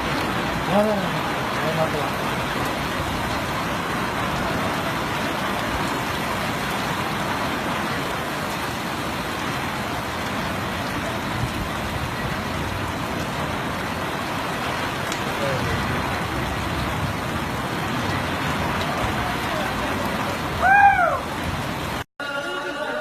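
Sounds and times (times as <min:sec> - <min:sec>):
heavy rain pouring: 0:00.0 - 0:23.0.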